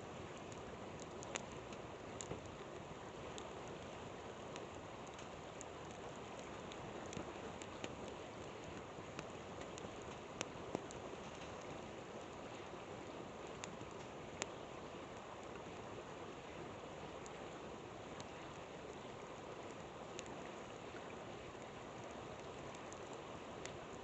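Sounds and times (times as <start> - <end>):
campfire crackling: 0.0 - 24.0
river flowing: 0.0 - 24.0.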